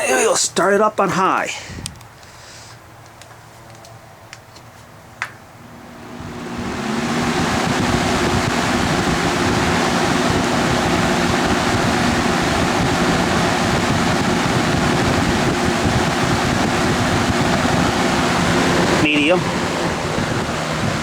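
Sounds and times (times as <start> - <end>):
box fan rushing air: 4.8 - 21.0.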